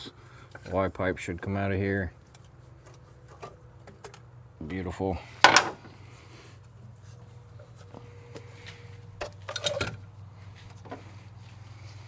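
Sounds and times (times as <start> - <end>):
knocks and rattles of parts: 2.2 - 4.4, 5.4 - 6.0, 7.5 - 11.4.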